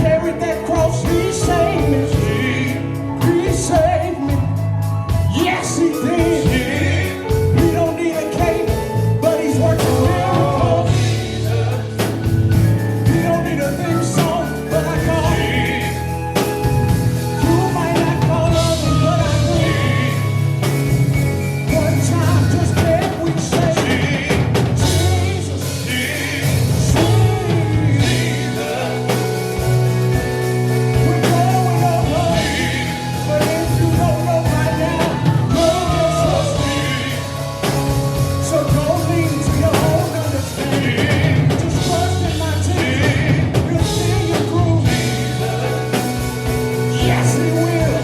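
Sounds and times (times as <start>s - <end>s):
gospel band with bass and drums: 0.0s - 48.0s
sung vocals: 0.0s - 48.0s.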